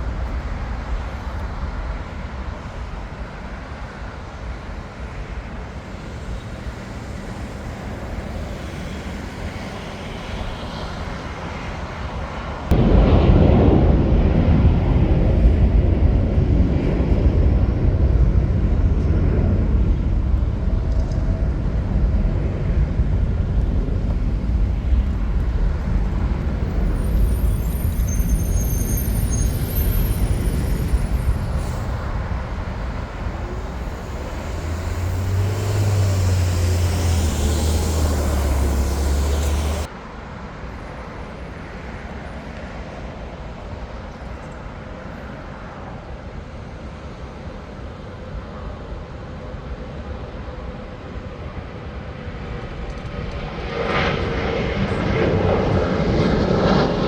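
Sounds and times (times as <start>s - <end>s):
jet engines rumbling: 0.0s - 39.9s, 51.4s - 57.0s
high whine: 12.7s - 39.9s
airport background noise: 13.7s - 37.3s
deep low hum: 29.2s - 39.9s.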